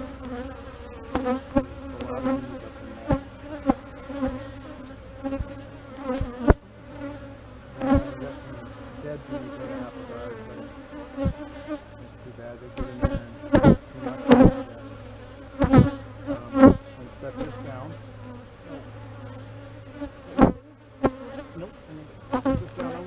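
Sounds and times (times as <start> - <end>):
honey bees buzzing: 0.0 - 23.0
sharp knocks: 15.6 - 15.9.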